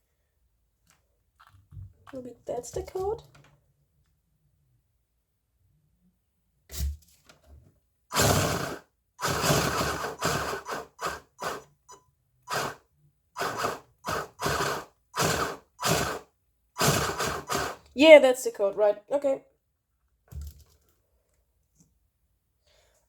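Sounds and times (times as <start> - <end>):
toy car gears whirring: 8.1 - 11.7, 12.5 - 12.8, 13.4 - 17.9.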